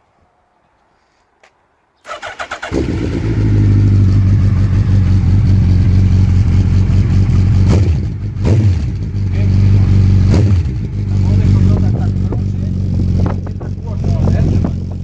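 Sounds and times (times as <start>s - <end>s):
motorcycle starter cranking: 2.1s - 3.6s
motorcycle engine idling loudly: 2.7s - 15.0s.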